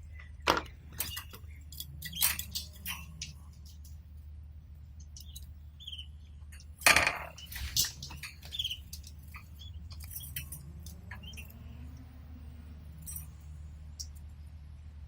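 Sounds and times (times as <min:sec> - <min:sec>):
steady low hum: 0:00.0 - 0:15.0
birds moving in cage: 0:00.1 - 0:04.1, 0:05.1 - 0:14.3
bird chirps: 0:00.9 - 0:03.4, 0:05.0 - 0:12.0.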